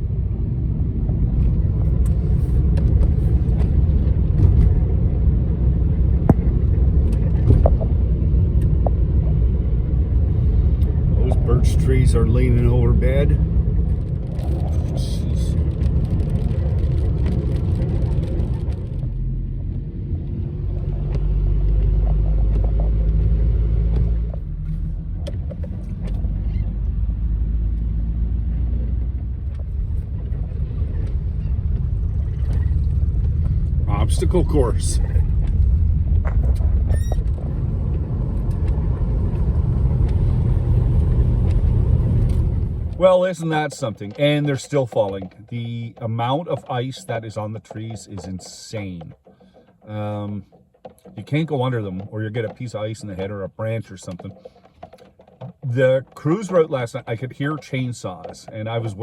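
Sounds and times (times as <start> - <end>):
van engine and tyres rumbling: 0.0 - 59.0
brief squeaks: 36.9 - 37.4.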